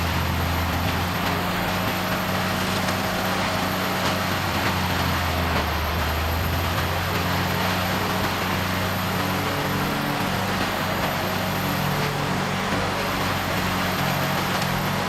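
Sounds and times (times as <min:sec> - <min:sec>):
diesel engine drone: 0:00.0 - 0:15.0
grinding noise: 0:00.0 - 0:15.0.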